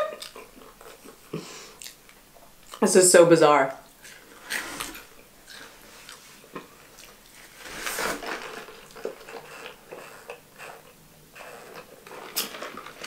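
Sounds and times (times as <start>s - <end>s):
person chewing: 0.0s - 2.8s, 3.9s - 7.5s, 8.2s - 13.0s
foam cup rustling: 7.4s - 13.0s
sipping through a straw: 7.6s - 12.6s.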